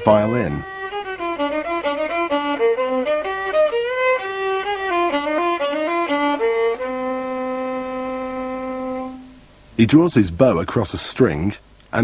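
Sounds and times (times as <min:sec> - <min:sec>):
solo violin bowed: 0:00.0 - 0:09.4.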